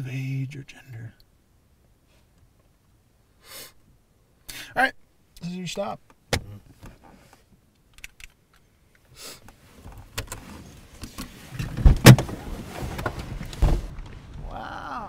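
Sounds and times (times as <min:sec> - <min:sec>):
clicks and rustling in seats: 0:06.1 - 0:14.4
shuffling: 0:09.4 - 0:14.9
car doors thumping: 0:11.6 - 0:14.0.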